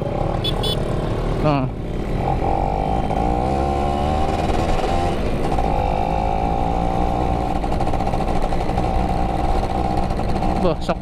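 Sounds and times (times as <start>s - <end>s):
two-stroke motorcycle engine running: 4.2s - 11.0s.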